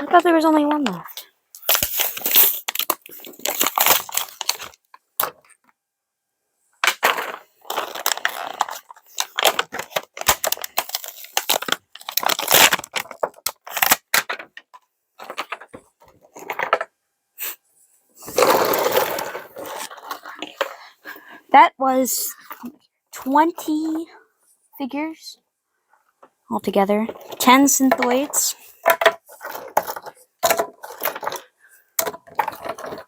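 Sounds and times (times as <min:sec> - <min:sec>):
plastic packaging crinkling and tearing: 0:01.6 - 0:04.9, 0:07.6 - 0:14.1.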